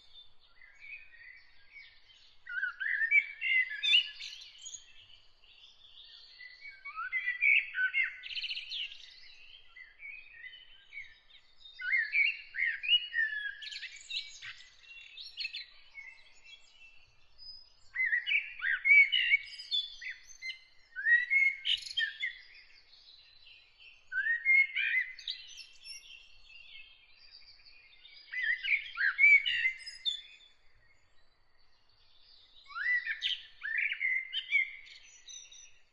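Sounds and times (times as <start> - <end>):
songbird singing: 0.0 - 35.9.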